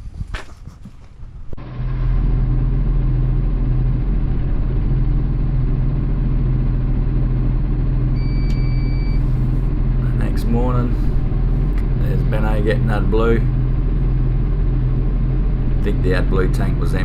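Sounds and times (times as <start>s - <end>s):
diesel truck engine idling: 1.6s - 17.0s
high electronic beep: 8.2s - 9.2s.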